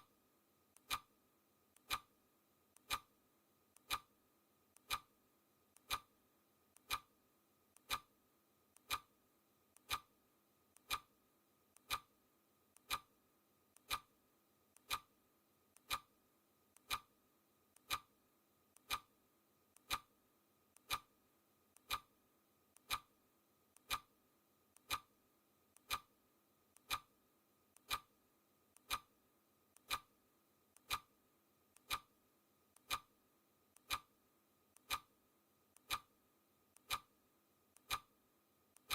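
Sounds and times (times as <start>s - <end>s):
clock ticking: 0.7s - 1.1s, 1.8s - 2.1s, 2.7s - 3.1s, 3.7s - 4.1s, 4.7s - 5.1s, 5.7s - 6.1s, 6.7s - 7.1s, 7.7s - 8.1s, 8.7s - 9.1s, 9.7s - 10.1s, 10.7s - 11.1s, 11.7s - 12.1s, 12.7s - 13.1s, 13.7s - 14.1s, 14.7s - 15.1s, 15.7s - 18.1s, 18.7s - 19.1s, 19.7s - 20.1s, 20.7s - 25.2s, 25.8s - 26.1s, 26.7s - 27.1s, 27.7s - 29.2s, 29.8s - 32.2s, 32.8s - 36.2s, 36.8s - 37.2s, 37.8s - 38.2s.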